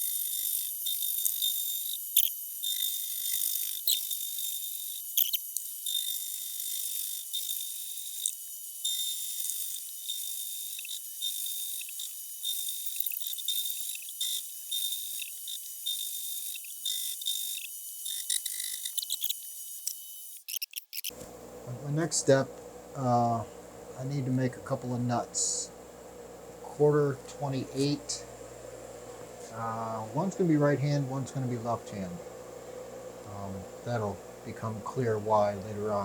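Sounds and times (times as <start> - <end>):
machine tool cutting metal: 0.0 - 23.4.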